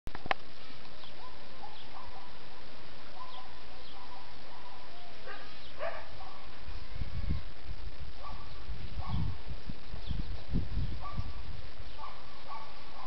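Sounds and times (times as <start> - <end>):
steady hiss: 0.1 - 13.0
birds chirping and calling: 0.9 - 2.4, 3.1 - 6.6, 8.2 - 13.0.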